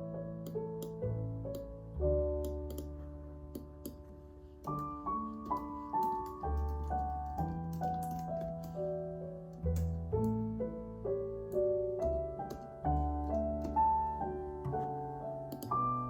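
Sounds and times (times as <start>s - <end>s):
calm solo piano music: 0.0s - 16.0s
computer keyboard typing clicks: 5.4s - 8.8s, 15.5s - 15.7s.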